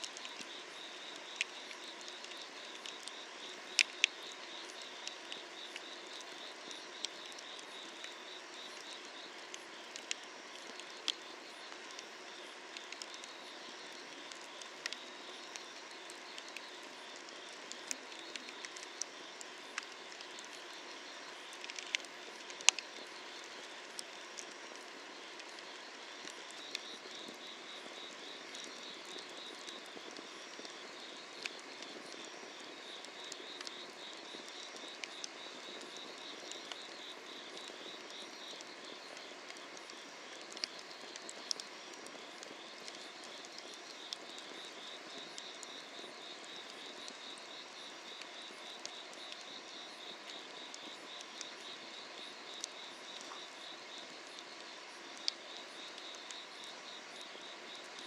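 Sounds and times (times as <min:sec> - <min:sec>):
insects chirping: 0:00.1 - 0:58.0
firewood crackling: 0:28.6 - 0:49.6.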